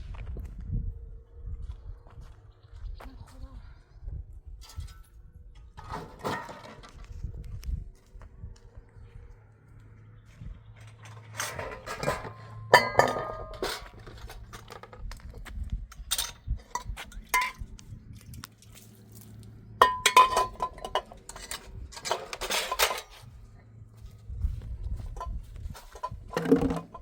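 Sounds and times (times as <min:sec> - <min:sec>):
dishes and utensils clattering: 0:05.8 - 0:06.9, 0:10.8 - 0:15.0, 0:16.0 - 0:17.6, 0:19.8 - 0:23.2, 0:25.2 - 0:27.0.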